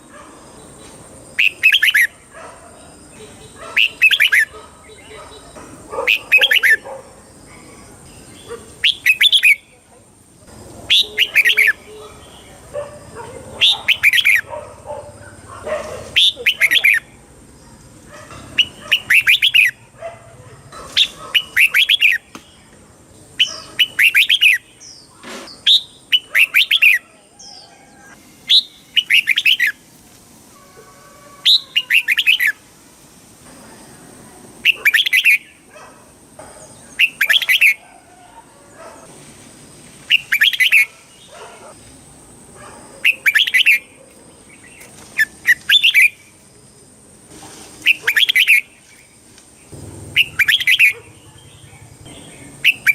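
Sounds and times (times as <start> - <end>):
bird warbling song: 0.6 - 6.9, 7.5 - 9.8, 10.9 - 14.5, 16.0 - 17.1, 18.3 - 19.8, 20.9 - 22.6, 23.4 - 29.8, 31.4 - 32.6, 36.6 - 37.8, 40.1 - 41.7, 43.0 - 46.3, 47.8 - 52.9
soft bird chirps: 47.8 - 52.9.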